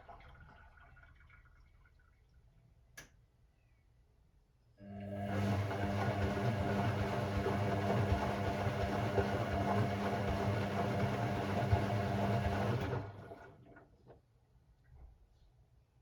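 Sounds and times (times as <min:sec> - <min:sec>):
washing machine humming: 0:04.8 - 0:14.1.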